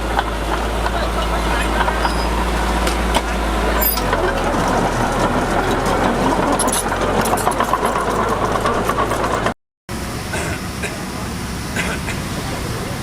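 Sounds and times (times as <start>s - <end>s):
diesel engine running: 0.0s - 13.0s
clattering and rattling: 0.2s - 9.6s.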